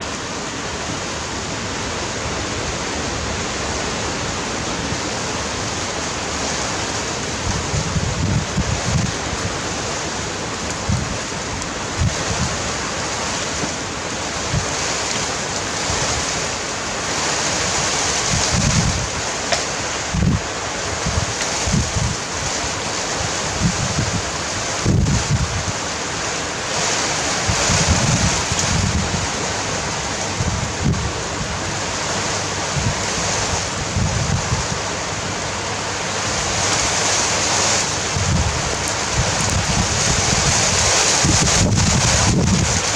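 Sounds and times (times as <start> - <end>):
high wind rushing: 0.0 - 13.0, 17.5 - 19.4, 20.0 - 25.9, 26.7 - 42.9
wind buffeting microphone: 7.1 - 14.9, 17.6 - 25.9, 26.7 - 35.5, 36.3 - 42.9.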